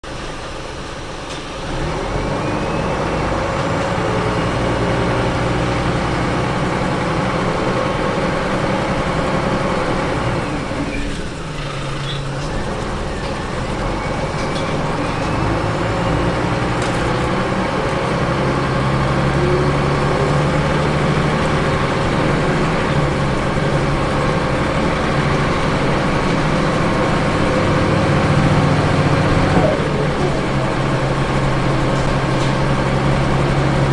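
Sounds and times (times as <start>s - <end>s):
bus engine running under load: 0.0s - 33.9s.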